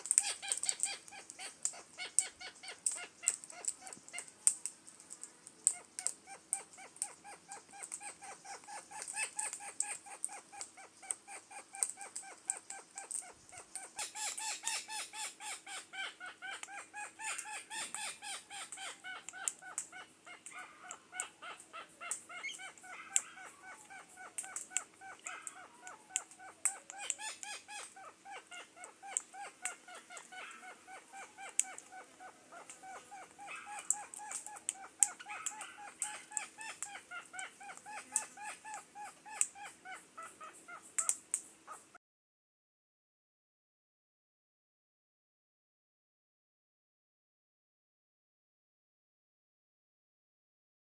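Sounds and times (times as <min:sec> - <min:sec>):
parrots calling: 0:00.0 - 0:04.4, 0:05.7 - 0:42.0.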